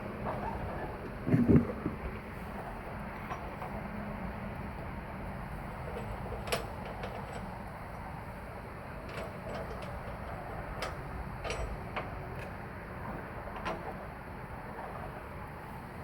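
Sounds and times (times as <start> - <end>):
steady low rumble: 0.0 - 3.0.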